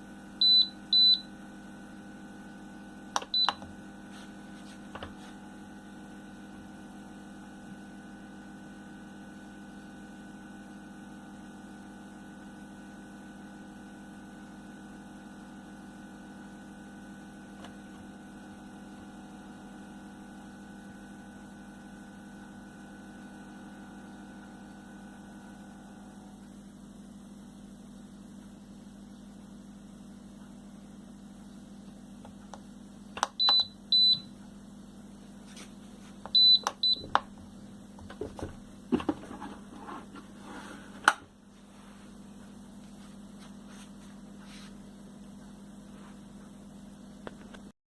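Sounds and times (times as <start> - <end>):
heat press humming: 0.2 - 7.2, 31.5 - 47.7.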